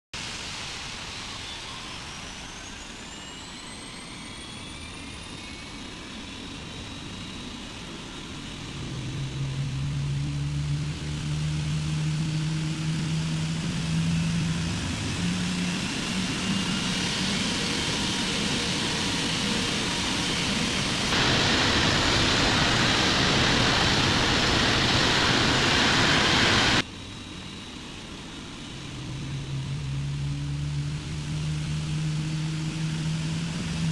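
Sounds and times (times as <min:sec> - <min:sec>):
jet engine whine: 0:00.2 - 0:33.9
deep steady hum: 0:08.6 - 0:17.7, 0:20.9 - 0:26.8, 0:28.6 - 0:33.9
loud rushing noise: 0:20.6 - 0:26.8.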